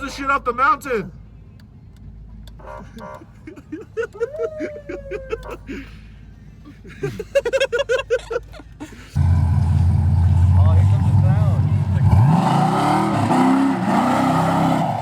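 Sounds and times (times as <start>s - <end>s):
men laughing: 2.8s - 9.5s
car engine revving loudly: 9.2s - 15.0s.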